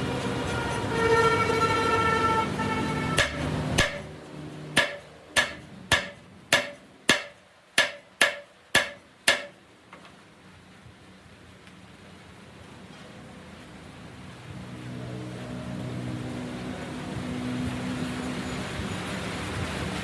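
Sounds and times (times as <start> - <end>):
hammer blows on metal: 2.9 - 4.1, 4.8 - 9.6.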